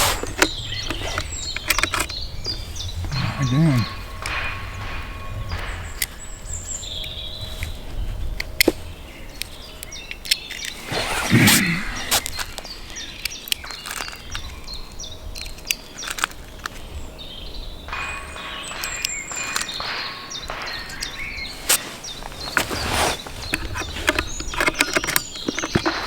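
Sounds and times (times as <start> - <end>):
sharp clicks: 0.0 - 7.8
rustling: 0.0 - 14.1, 18.0 - 26.0
small birds chirping: 0.0 - 26.0.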